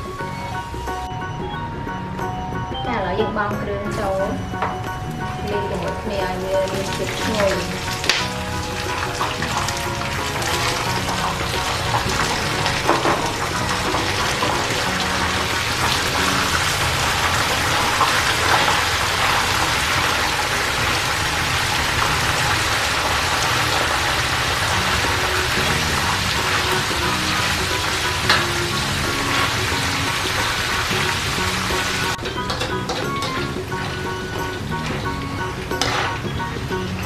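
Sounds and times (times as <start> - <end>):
food sizzling in oil: 5.1 - 37.0
metal spatula scraping pan: 31.7 - 36.3.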